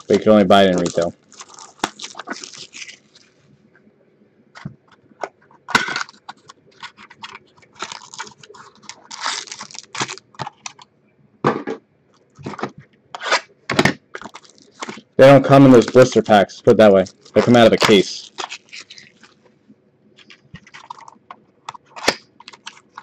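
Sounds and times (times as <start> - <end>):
cardboard and wrapping rustling: 0.0 - 3.5, 5.6 - 10.8, 12.4 - 12.8, 14.1 - 19.4, 20.2 - 21.2, 21.8 - 23.0.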